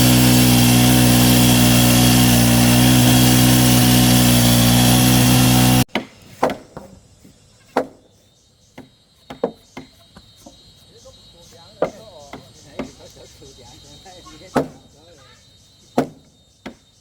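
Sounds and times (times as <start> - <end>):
power tool cutting wood: 0.0 - 5.9.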